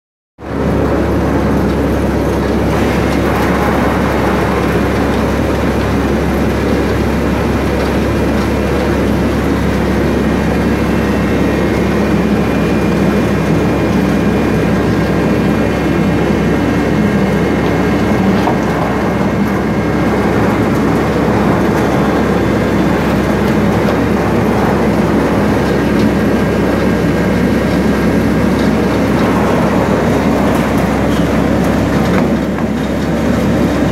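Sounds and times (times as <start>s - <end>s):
low hum: 0.4s - 33.9s
machinery rumbling: 0.4s - 33.9s.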